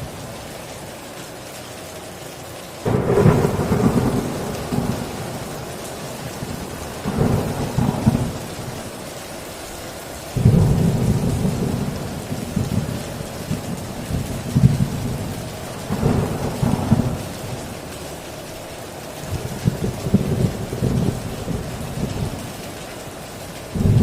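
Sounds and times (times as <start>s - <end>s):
rain drumming on a tin roof: 0.0s - 24.0s
thunder rolling: 2.9s - 9.0s, 10.4s - 17.9s, 19.2s - 22.5s, 23.7s - 24.0s.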